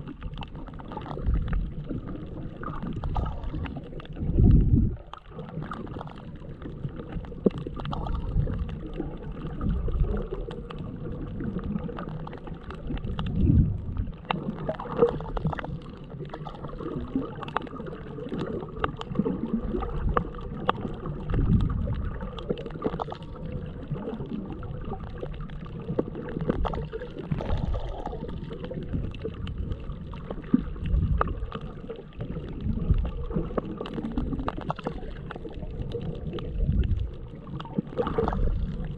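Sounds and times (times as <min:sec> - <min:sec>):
crackle of small clicks: 0:00.0 - 0:38.9
muffled underwater water sloshing: 0:00.0 - 0:38.9.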